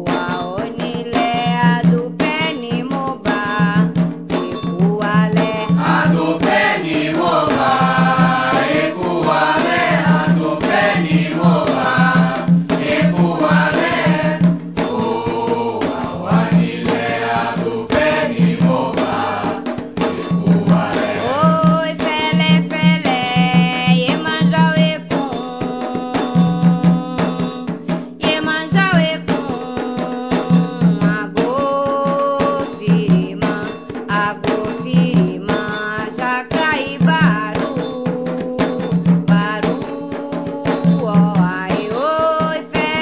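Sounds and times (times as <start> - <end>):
hand drums beating: 0.0 - 43.0
voices chanting: 5.8 - 21.8.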